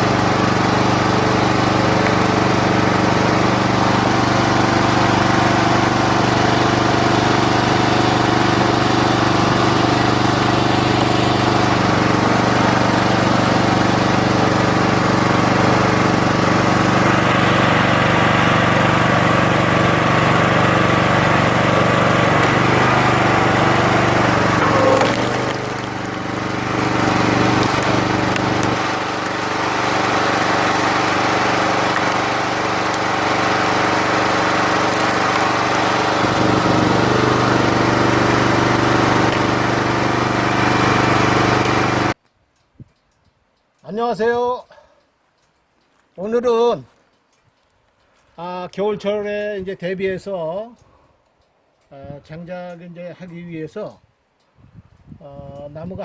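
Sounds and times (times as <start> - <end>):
log splitter engine running: 0.0 - 42.2.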